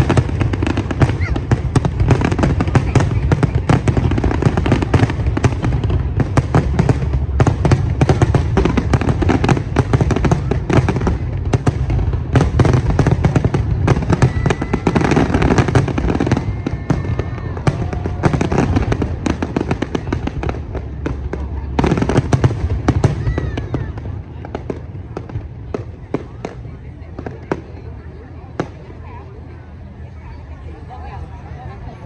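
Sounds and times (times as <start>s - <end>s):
fireworks cracks and bangs: 0.0s - 29.2s.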